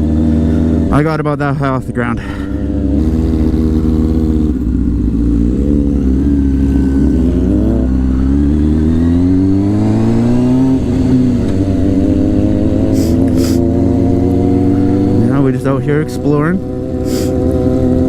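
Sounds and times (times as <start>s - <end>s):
motorcycle engine shifting gears: 0.0s - 18.0s.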